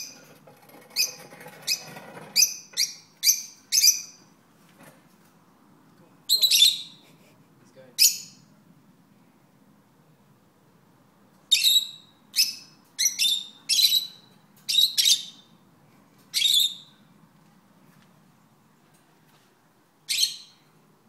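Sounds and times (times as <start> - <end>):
parrots chirping: 0.9 - 4.3, 6.3 - 7.0, 8.0 - 8.5, 11.5 - 15.6, 16.3 - 17.0, 20.1 - 20.7.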